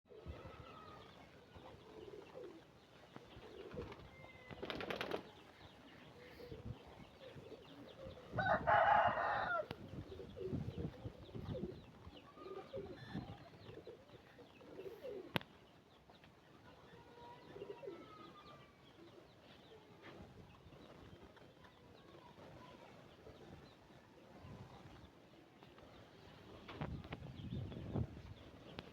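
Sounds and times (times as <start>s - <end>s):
pigeons cooing: 0.1s - 15.7s, 17.4s - 19.4s.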